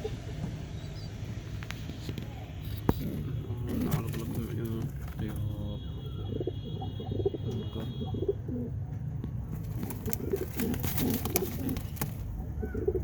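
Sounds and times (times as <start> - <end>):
pigeons cooing: 3.2 - 5.0, 6.0 - 8.8, 9.5 - 13.0.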